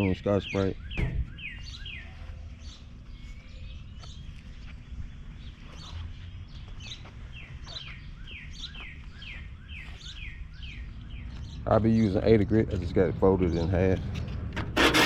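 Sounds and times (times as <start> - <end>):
songbird chirping: 0.0 - 14.4.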